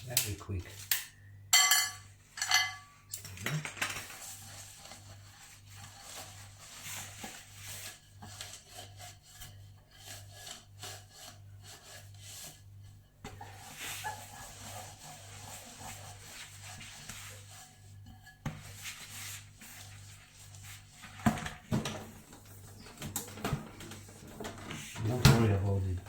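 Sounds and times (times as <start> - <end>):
wipe scrubbing a surface: 4.1 - 22.7, 23.8 - 26.0.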